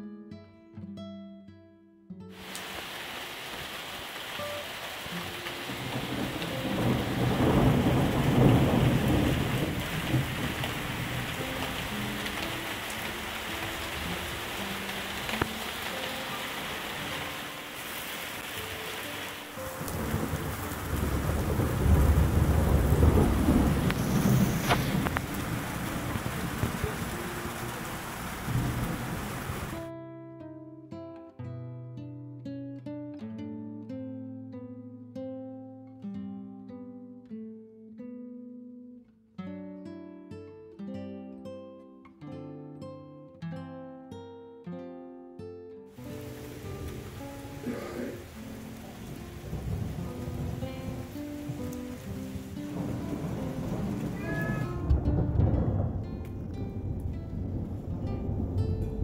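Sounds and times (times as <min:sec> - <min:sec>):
heavy rain pouring: 0:02.4 - 0:29.9, 0:45.9 - 0:59.0
thunder rolling: 0:05.6 - 0:29.8, 0:46.0 - 0:59.0.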